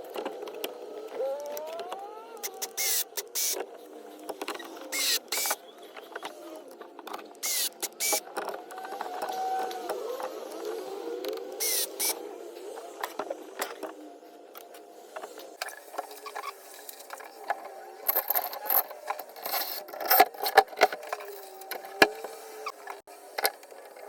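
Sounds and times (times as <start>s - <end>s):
tools and metal parts clinking: 15.6s - 22.0s.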